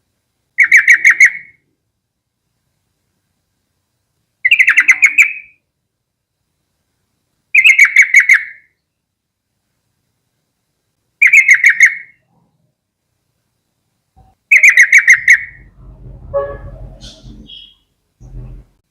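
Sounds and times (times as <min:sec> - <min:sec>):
bird singing chattering phrases: 0:00.6 - 0:01.6, 0:04.4 - 0:05.6, 0:07.6 - 0:08.8, 0:11.2 - 0:12.3, 0:14.2 - 0:15.7, 0:16.9 - 0:18.4.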